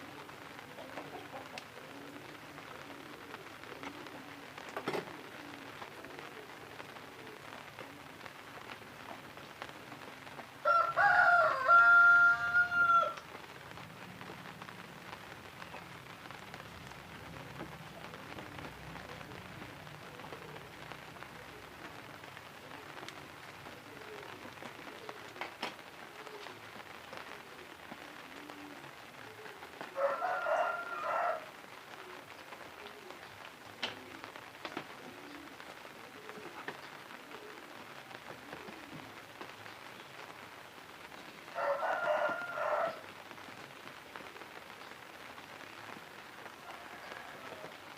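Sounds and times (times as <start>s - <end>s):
rooster crowing: 10.6s - 13.2s, 30.0s - 31.6s, 41.5s - 43.1s, 46.6s - 47.9s.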